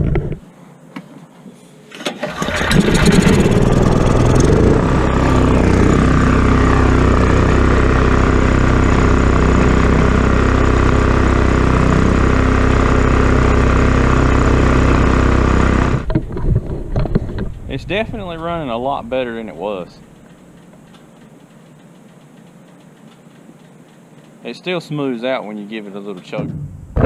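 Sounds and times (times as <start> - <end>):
generator engine starting and running: 1.9 - 21.0, 26.3 - 27.0.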